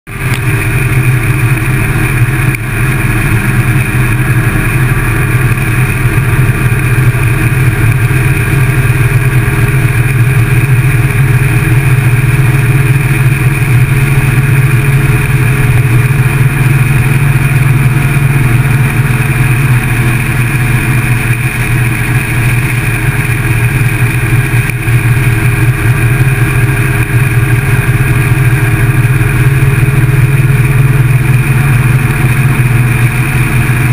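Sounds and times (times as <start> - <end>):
motorcycle engine running: 0.1 - 33.9.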